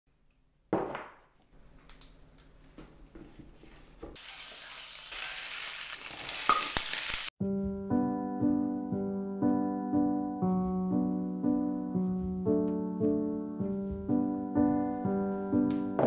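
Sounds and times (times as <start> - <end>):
wooden spatula stirring: 2.5 - 4.2
food sizzling in hot oil: 4.2 - 7.3.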